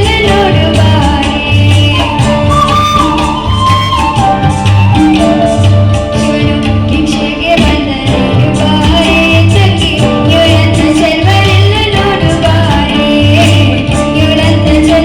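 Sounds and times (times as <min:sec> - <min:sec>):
instrumental accompaniment: 0:00.0 - 0:15.0.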